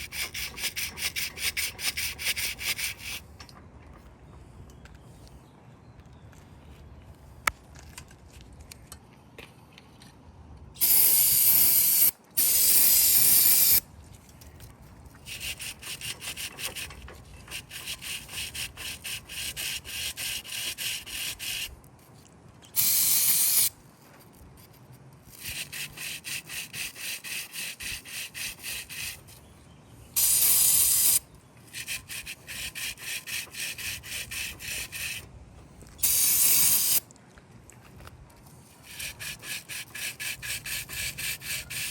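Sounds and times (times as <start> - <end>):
stiff brush scrubbing metal: 0.0 - 3.3, 15.1 - 21.8, 25.3 - 29.4, 30.2 - 35.2, 38.8 - 41.9
hissing spray bursts: 10.8 - 13.8, 22.8 - 23.7, 30.2 - 31.2, 36.0 - 37.0.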